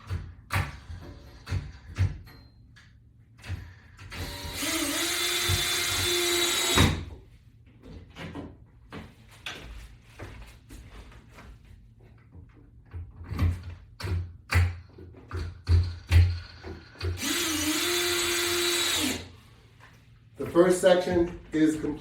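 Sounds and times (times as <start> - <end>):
knocks and clatters of parts: 0.0 - 4.7, 7.7 - 9.8, 12.0 - 17.5
power drill driving a screw: 4.1 - 7.1, 17.0 - 19.3.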